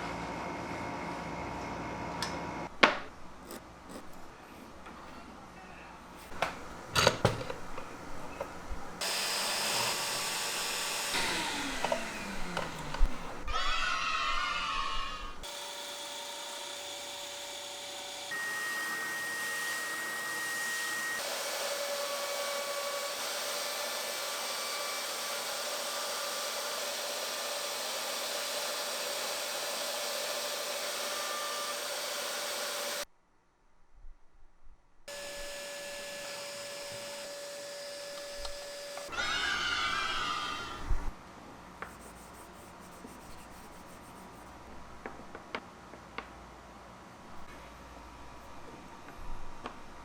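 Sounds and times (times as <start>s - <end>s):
power tool whining: 9.0s - 33.0s, 35.1s - 41.0s.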